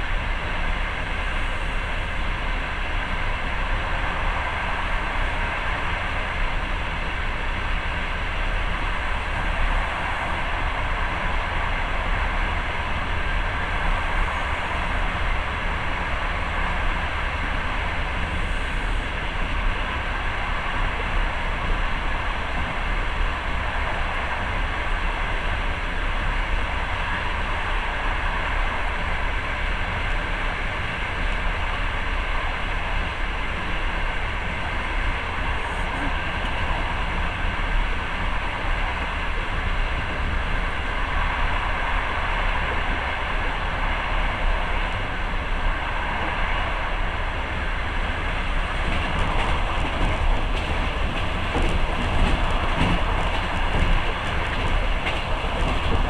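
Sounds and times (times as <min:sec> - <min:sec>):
train rumble inside carriage: 0:00.0 - 0:56.0.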